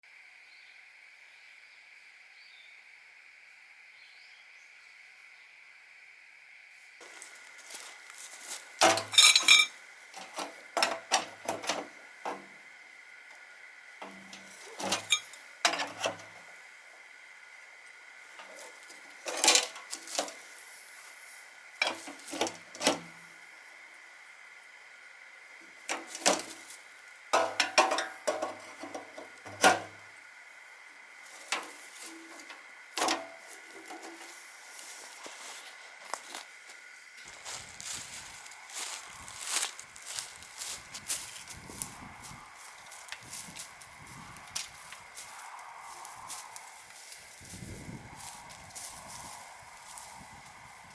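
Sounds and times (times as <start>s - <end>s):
ringing clanks: 8.8s - 11.8s, 14.1s - 16.1s
knocks and clatter of gear: 8.8s - 11.9s
metal cookware clinking and clattering: 8.8s - 12.4s, 14.0s - 16.2s, 19.2s - 20.4s, 27.4s - 29.9s.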